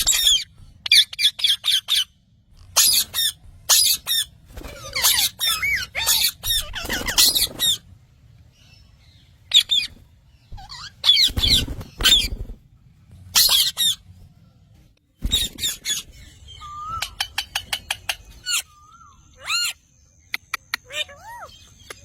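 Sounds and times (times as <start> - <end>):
parrots squawking: 0.0 - 7.8, 9.4 - 12.5, 13.3 - 14.0, 15.3 - 19.9, 20.8 - 21.9.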